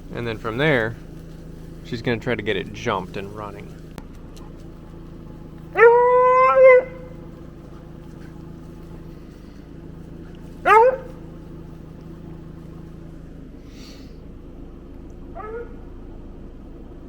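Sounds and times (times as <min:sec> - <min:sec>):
hound baying: 0:00.1 - 0:13.3, 0:15.1 - 0:16.1.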